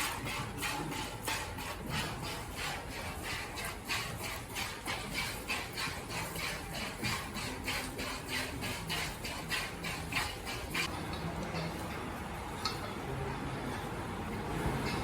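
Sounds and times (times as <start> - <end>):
cow chewing feed: 0.0 - 12.0.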